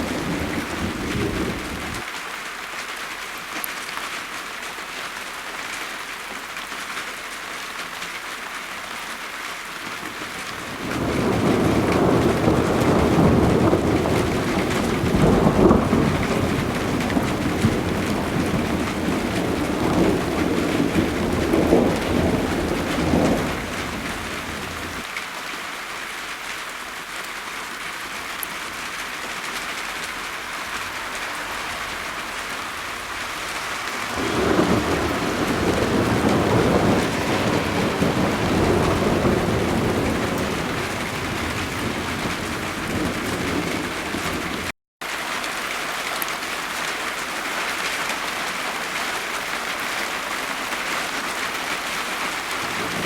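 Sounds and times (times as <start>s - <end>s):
thunder rumbling: 0.0s - 2.0s, 10.6s - 25.1s, 32.1s - 44.7s, 52.5s - 53.0s
steady rain falling: 0.0s - 53.0s.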